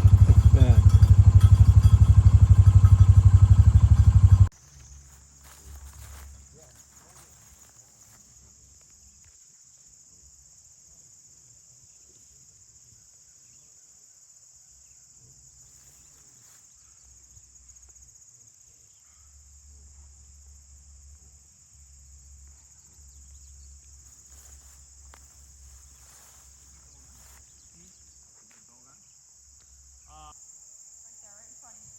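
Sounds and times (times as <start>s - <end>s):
low rumble: 0.0s - 4.5s
insect chorus chirring: 0.0s - 31.9s.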